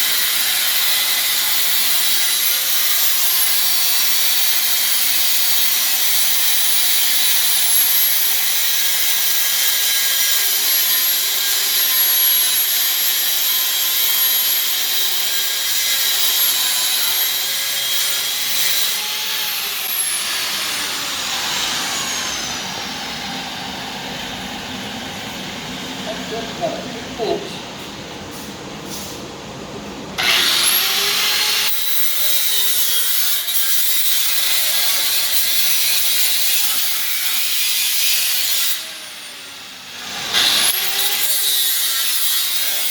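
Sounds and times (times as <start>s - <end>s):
cut-off grinder whining: 9.6s - 27.4s, 30.2s - 36.6s.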